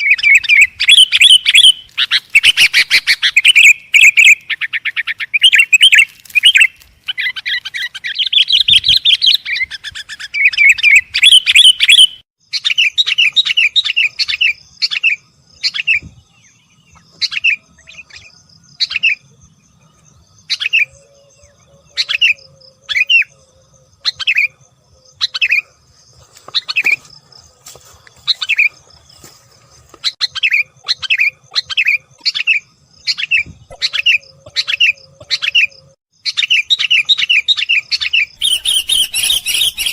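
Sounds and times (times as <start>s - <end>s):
bird chattering and chirping: 30.0s - 39.9s.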